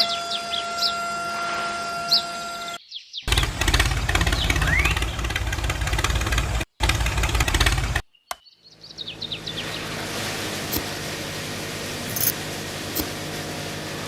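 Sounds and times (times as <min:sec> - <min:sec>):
engine pulsing: 0:03.3 - 0:08.1, 0:08.7 - 0:14.0.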